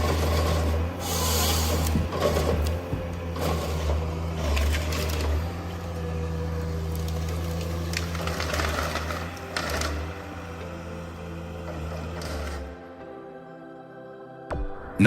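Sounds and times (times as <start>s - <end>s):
heavy machinery humming: 0.0s - 13.6s.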